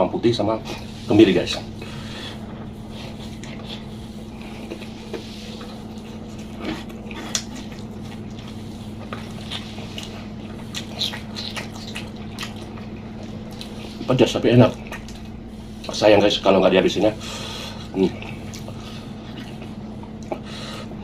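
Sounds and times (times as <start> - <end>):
person chewing food: 1.5 - 16.0, 17.2 - 21.0
wet mouth clicks and smacks: 7.3 - 8.3, 10.0 - 13.8.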